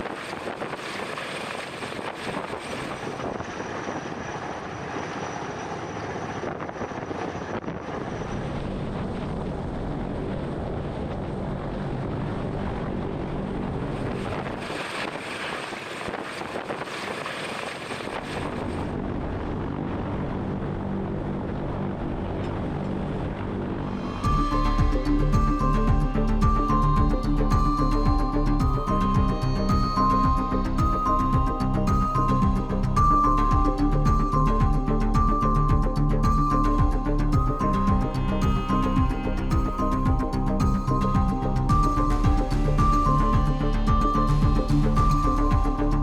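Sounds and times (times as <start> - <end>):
aircraft engines droning: 0.0 - 33.0.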